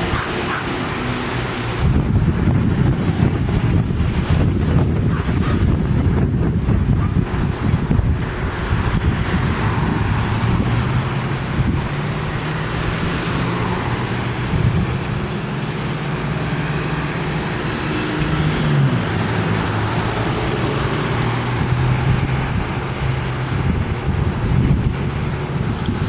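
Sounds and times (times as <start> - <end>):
wind blowing across microphone: 0.0 - 26.0.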